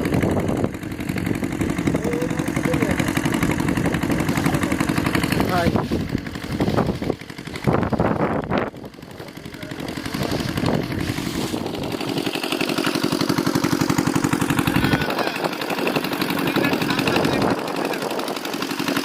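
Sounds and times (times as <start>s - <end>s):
sharp noises: 0.0s - 19.0s
small engine running: 0.0s - 19.0s.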